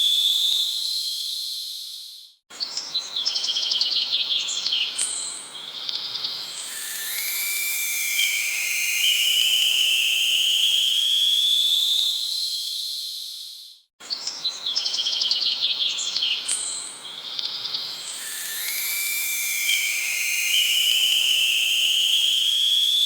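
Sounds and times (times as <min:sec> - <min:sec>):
rapid bird chirps: 0:00.0 - 0:23.0
high insect drone: 0:05.2 - 0:12.3, 0:16.6 - 0:23.0
rising whistle-like tone: 0:06.6 - 0:13.6, 0:18.0 - 0:23.0.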